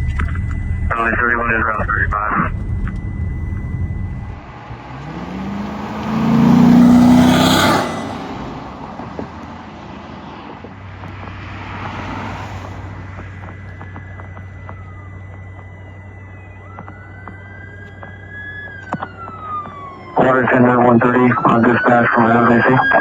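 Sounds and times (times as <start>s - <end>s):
vehicle engine driving past: 2.4s - 15.0s.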